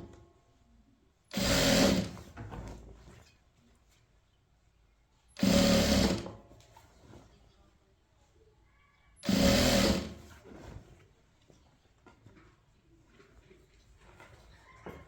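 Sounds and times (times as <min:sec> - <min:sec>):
sewing machine stitching: 0:01.3 - 0:02.3, 0:05.4 - 0:06.4, 0:09.2 - 0:10.4.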